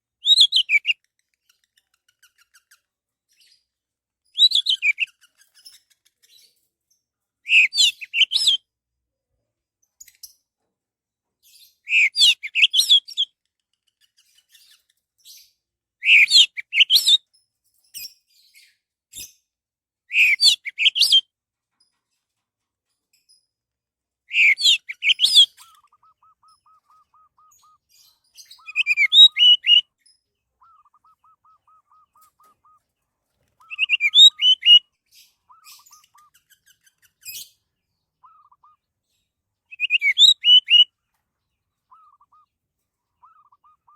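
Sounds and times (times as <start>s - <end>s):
thrush singing whistled phrases: 7.5s - 8.6s, 11.9s - 13.2s, 16.0s - 17.2s, 20.1s - 21.2s, 24.3s - 27.8s, 28.5s - 29.9s, 30.6s - 32.8s, 33.6s - 36.3s, 38.2s - 38.8s, 39.7s - 40.9s, 41.9s - 42.5s, 43.2s - 43.9s
faint repeated lower bird notes: 24.3s - 43.9s.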